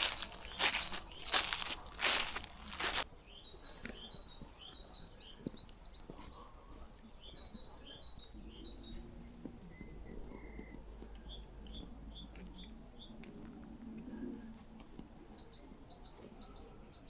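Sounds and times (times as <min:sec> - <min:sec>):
footsteps crunching on forest floor: 0:00.0 - 0:03.0
songbird chirping: 0:00.0 - 0:14.1, 0:15.0 - 0:17.0.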